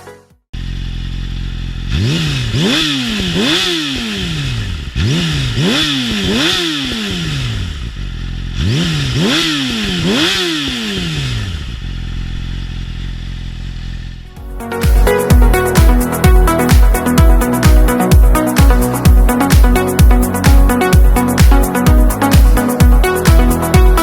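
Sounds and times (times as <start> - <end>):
motorcycle engine revving: 0.6 - 24.0.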